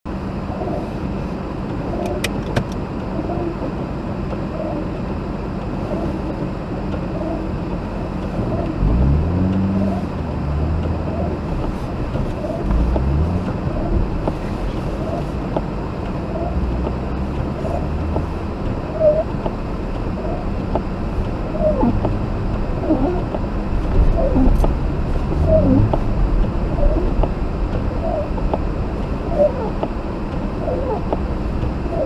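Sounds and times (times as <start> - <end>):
road and tyre noise: 0.0 - 32.0
car engine accelerating: 7.0 - 32.0.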